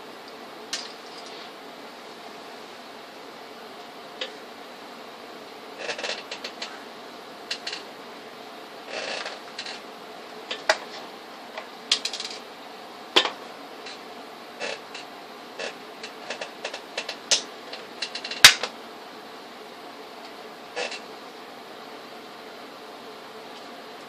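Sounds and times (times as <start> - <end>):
steady background hiss: 0.0 - 24.0
tools and parts clicking: 11.9 - 12.4.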